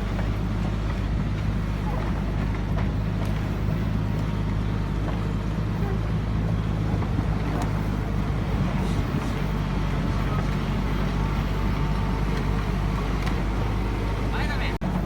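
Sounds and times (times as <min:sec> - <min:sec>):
excavator diesel engine humming: 0:00.0 - 0:15.0.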